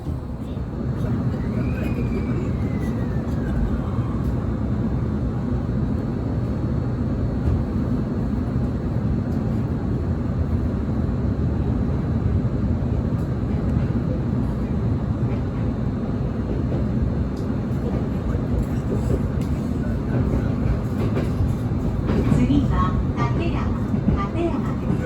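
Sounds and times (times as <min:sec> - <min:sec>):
electric train whine: 0:00.0 - 0:25.0
train wheels rumbling on track: 0:00.0 - 0:25.0.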